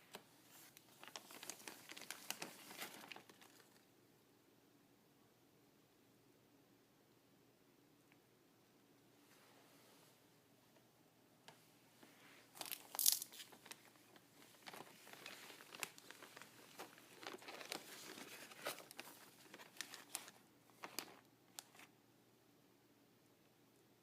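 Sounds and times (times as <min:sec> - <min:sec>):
packaging crinkling: 0:00.5 - 0:03.8, 0:12.5 - 0:21.9.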